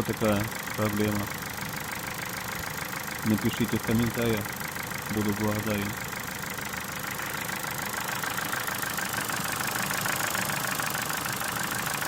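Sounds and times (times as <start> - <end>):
car engine idling: 0.0 - 12.0
rapid engine ticking: 0.0 - 12.0.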